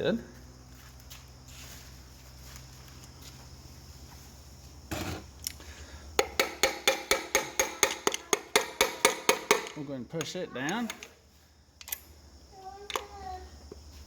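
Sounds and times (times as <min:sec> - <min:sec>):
metal scrape: 0:04.9 - 0:05.3
metal-on-metal tapping: 0:06.2 - 0:11.1.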